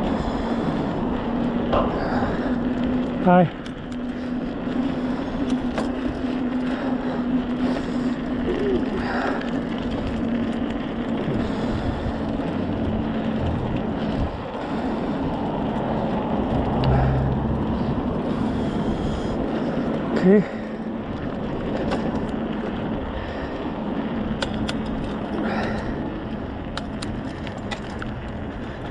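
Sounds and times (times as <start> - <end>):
road traffic hum: 0.0 - 28.9
wind buffeting microphone: 0.0 - 28.9.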